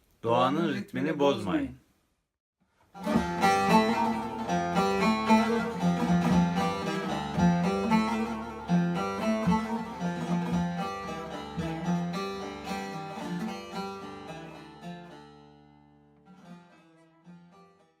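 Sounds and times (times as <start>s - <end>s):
plucked string music: 2.8s - 18.0s.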